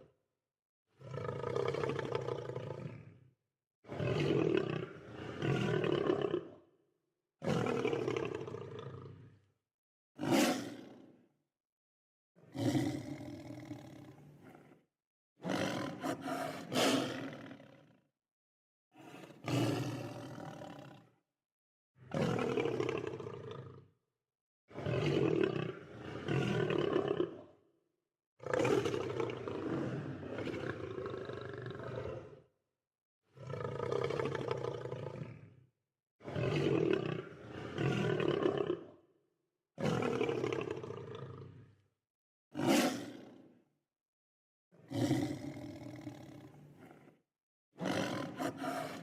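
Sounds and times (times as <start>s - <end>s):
lion roaring: 1.0s - 3.2s, 12.5s - 14.8s, 15.4s - 17.8s, 28.4s - 32.4s, 33.4s - 35.5s, 36.3s - 39.0s, 39.8s - 41.8s, 42.6s - 43.2s, 44.9s - 47.1s, 47.8s - 49.0s.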